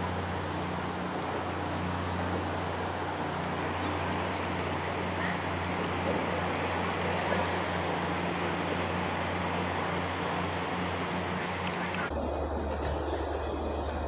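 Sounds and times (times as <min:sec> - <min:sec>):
outdoor background noise: 0:00.0 - 0:14.0
low engine hum: 0:09.5 - 0:14.0.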